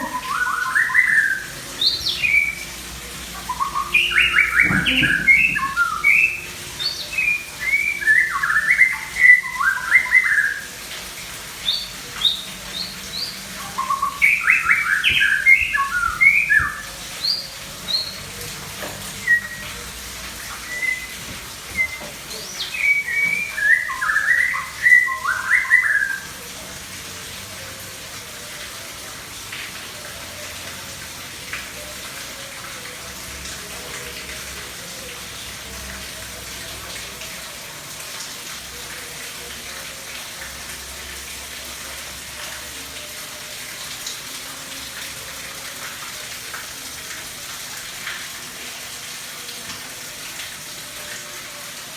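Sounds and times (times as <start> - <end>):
songbird chirps and whistles: 0.0 - 2.8, 3.4 - 10.7, 11.6 - 18.2, 19.2 - 26.4.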